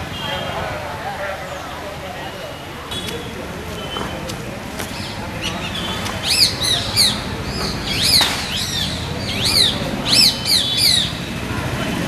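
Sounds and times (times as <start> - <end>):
low background noise: 0.0 - 12.0
bird chirping: 4.9 - 11.3.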